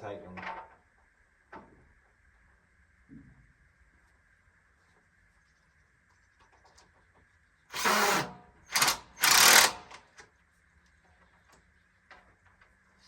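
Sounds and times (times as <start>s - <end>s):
impact driver driving screws: 7.7s - 10.0s.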